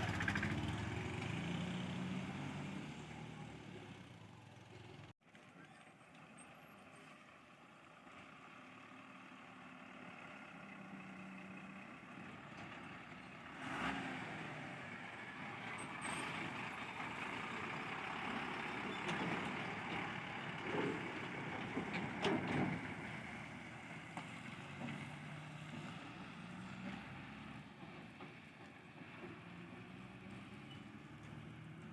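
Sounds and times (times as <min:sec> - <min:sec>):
heavy diesel machinery running: 0:14.7 - 0:30.0.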